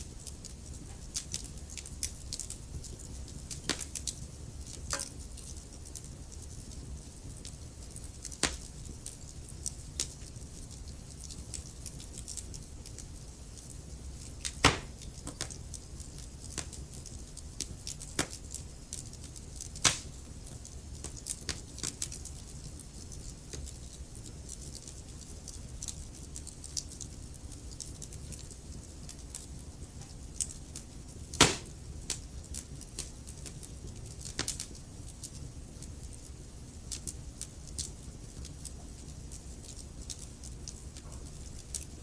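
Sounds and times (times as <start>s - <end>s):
low rumble of flames: 0.0s - 42.0s
wood fire crackling: 0.0s - 42.0s
sharp pops of burning logs: 3.0s - 5.3s, 8.3s - 8.7s, 14.4s - 15.6s, 16.4s - 18.4s, 19.6s - 20.2s, 21.0s - 22.0s, 31.3s - 33.6s, 34.3s - 34.7s.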